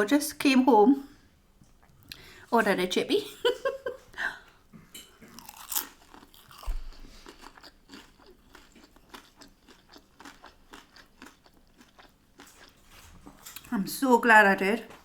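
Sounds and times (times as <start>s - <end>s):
chewing crunchy food: 5.0s - 13.7s.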